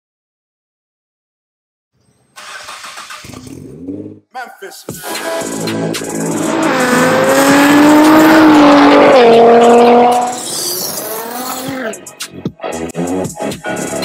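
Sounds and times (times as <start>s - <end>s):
sports car engine revving: 3.2s - 4.3s, 5.4s - 12.0s.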